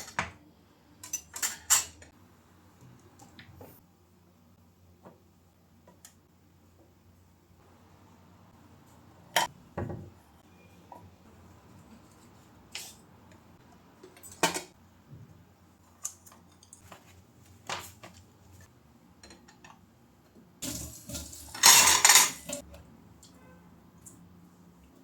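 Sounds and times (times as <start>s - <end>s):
dishes and cutlery clinking: 1.0s - 2.1s, 20.7s - 22.7s.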